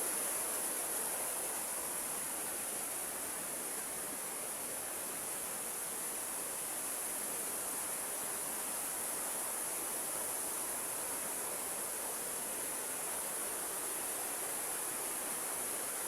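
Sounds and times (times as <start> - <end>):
running water hiss: 0.0 - 16.0.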